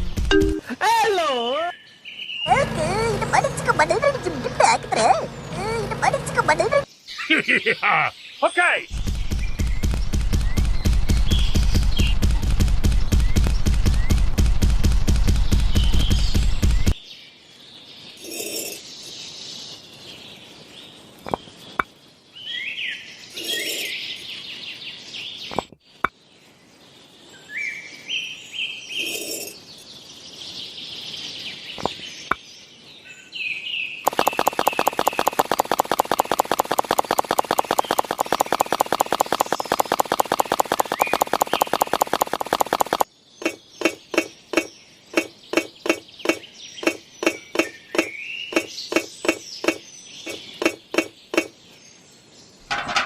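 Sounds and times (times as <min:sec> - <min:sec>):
birds chirping: 0:00.0 - 0:14.5, 0:15.1 - 0:53.0
small engine running: 0:02.5 - 0:06.8, 0:34.1 - 0:43.0
sharp clicks: 0:34.1 - 0:51.6.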